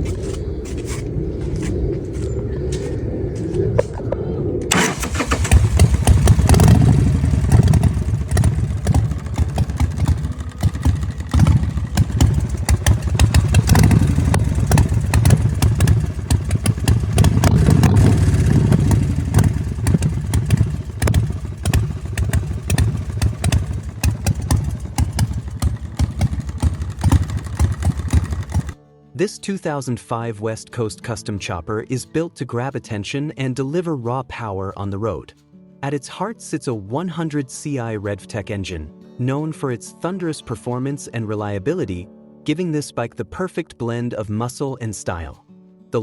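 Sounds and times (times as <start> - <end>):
motorcycle engine revving: 4.7 - 28.8.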